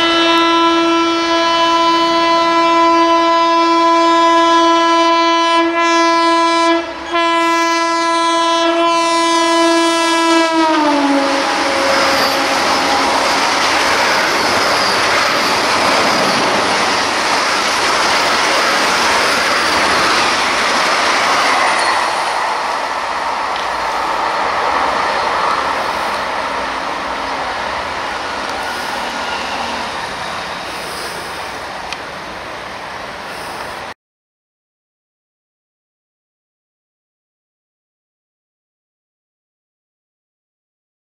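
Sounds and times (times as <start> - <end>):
train wheels rushing on rails: 9.3 - 34.0.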